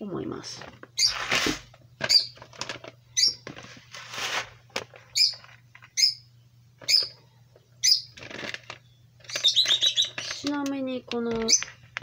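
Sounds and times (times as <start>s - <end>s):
steady low hum: 0.0s - 12.0s
small bird chirping: 1.0s - 1.2s, 1.9s - 2.4s, 3.1s - 3.5s, 5.1s - 11.8s.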